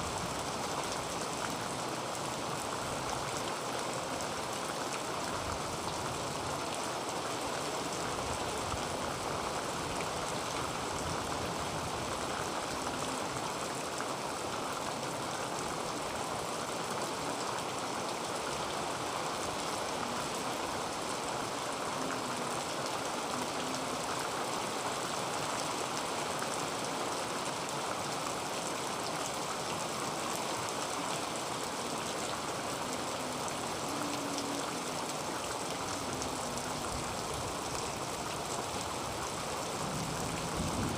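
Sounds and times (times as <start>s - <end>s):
heavy rain on a tin roof: 0.0s - 40.9s.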